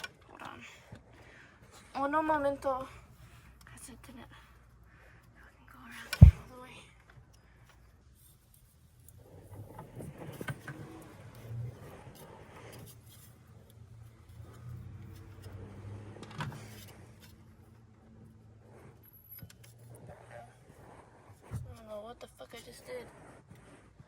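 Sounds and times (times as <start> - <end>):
steady low hum: 6.0 - 6.6.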